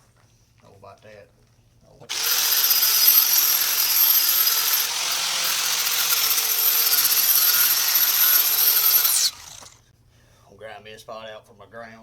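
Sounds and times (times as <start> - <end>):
angle grinder grinding steel: 2.1 - 9.8.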